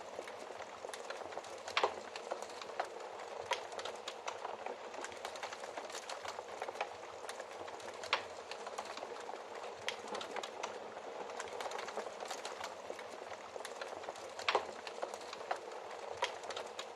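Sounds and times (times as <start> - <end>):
fireplace fire crackling: 0.0 - 16.9.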